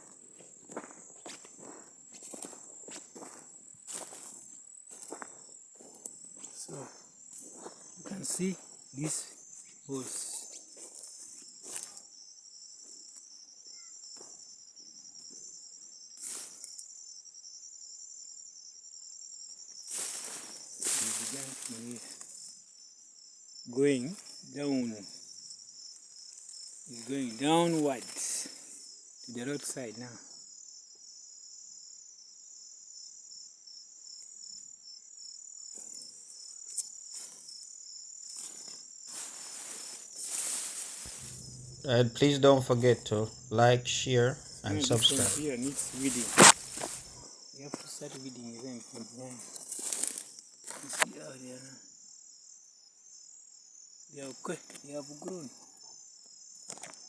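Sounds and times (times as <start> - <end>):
crickets trilling: 0.0 - 57.0
rustle: 19.8 - 22.6, 35.9 - 41.8, 44.8 - 47.2, 47.8 - 51.3
rustling: 38.6 - 43.5, 44.1 - 47.2.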